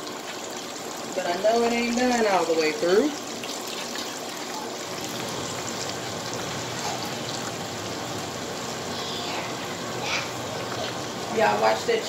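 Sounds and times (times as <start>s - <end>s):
chicken frying in hot oil: 0.0s - 12.0s.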